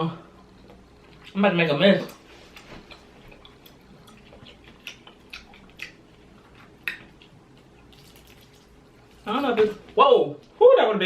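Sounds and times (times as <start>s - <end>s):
faint wet squelches: 2.1s - 10.6s.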